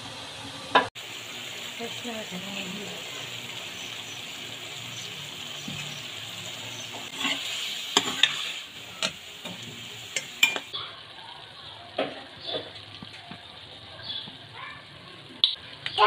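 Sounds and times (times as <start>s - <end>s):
food sizzling in a pot: 0.0s - 16.0s
metal ladle clinking against pot: 10.2s - 10.7s.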